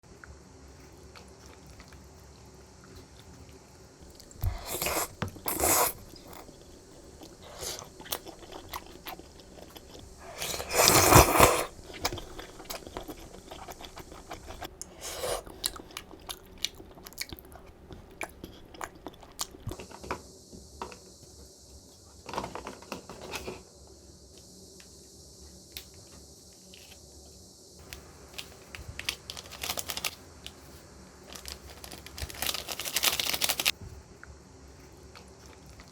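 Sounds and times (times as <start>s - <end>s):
chewing and biting: 1.0s - 19.8s.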